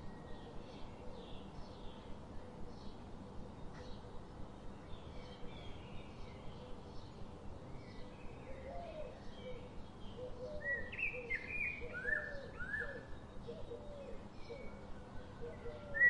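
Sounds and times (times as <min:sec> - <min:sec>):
steady background hiss: 0:00.0 - 0:16.0
birds chirping and calling: 0:08.2 - 0:16.0.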